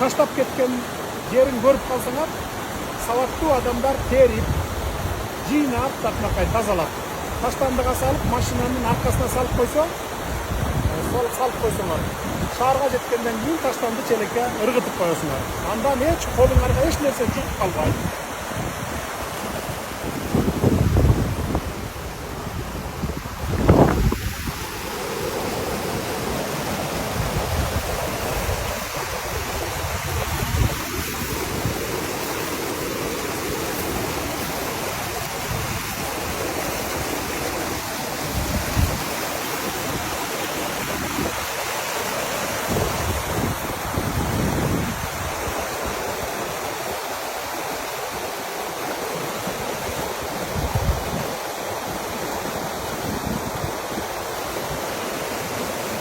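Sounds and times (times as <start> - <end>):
mountain stream rushing: 0.0 - 56.0
wind buffeting microphone: 4.0 - 5.4, 7.3 - 12.6, 16.0 - 32.0, 34.9 - 41.6, 42.6 - 46.4, 49.8 - 52.0.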